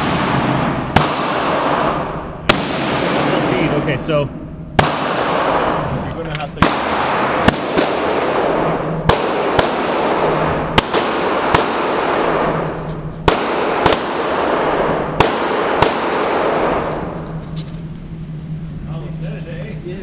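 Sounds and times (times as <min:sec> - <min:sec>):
handgun shots: 0:00.0 - 0:03.3, 0:04.8 - 0:05.9, 0:06.6 - 0:17.4
steady background hiss: 0:00.0 - 0:20.0.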